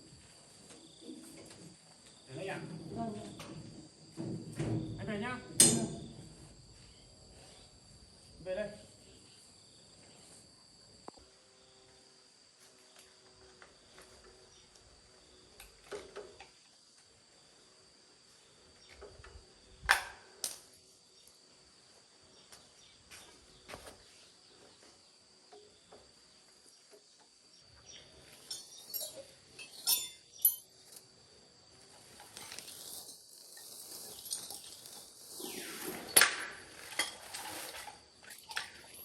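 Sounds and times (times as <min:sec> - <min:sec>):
high insect drone: 0:00.0 - 0:39.0
metallic clinks and knocks: 0:28.4 - 0:31.0.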